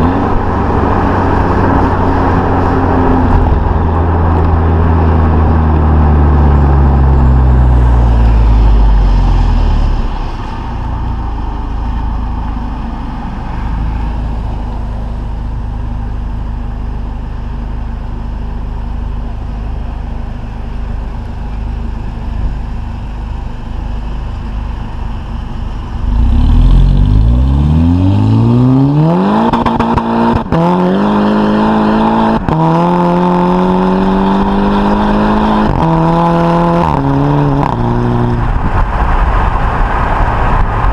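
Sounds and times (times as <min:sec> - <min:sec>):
car engine revving and accelerating: 0:25.9 - 0:40.9.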